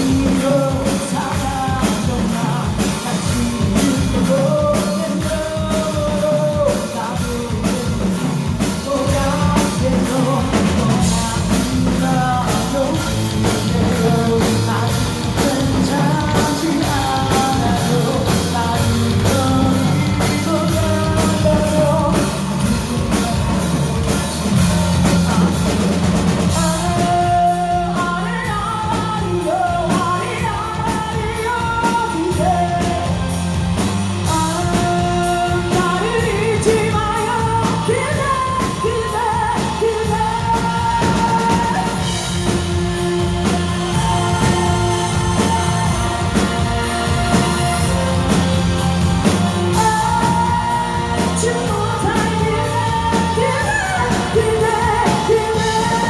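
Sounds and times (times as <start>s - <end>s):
drum kit: 0.0s - 56.0s
rock song with singer: 0.0s - 56.0s
guitar playing: 41.9s - 54.6s.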